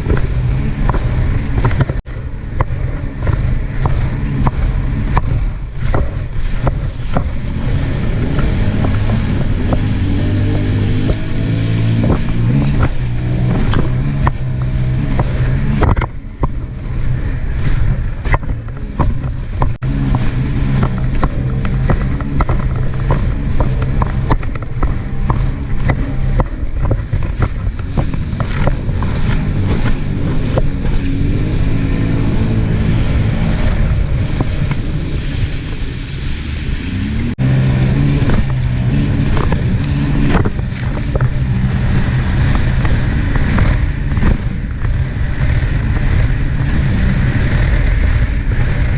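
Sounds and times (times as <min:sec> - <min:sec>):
jet ski engine running: 0:00.0 - 0:48.9.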